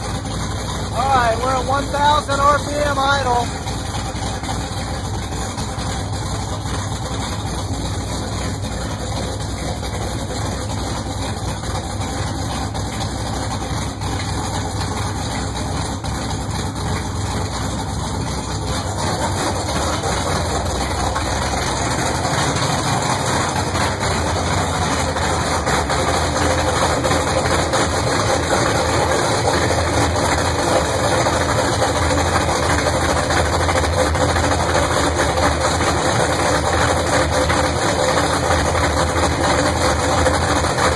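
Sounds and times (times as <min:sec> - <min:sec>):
car engine fast idle: 0:00.0 - 0:40.9.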